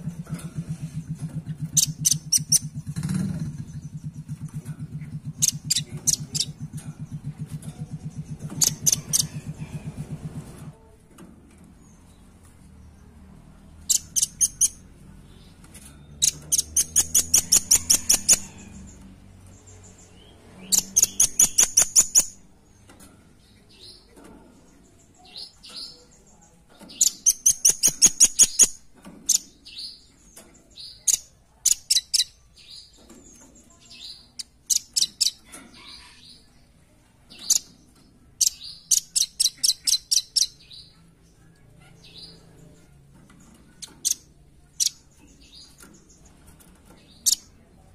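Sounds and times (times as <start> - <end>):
bird calling in rapid trills: 1.6 - 4.4, 5.3 - 6.6, 8.1 - 9.6, 16.2 - 18.8, 20.7 - 22.4.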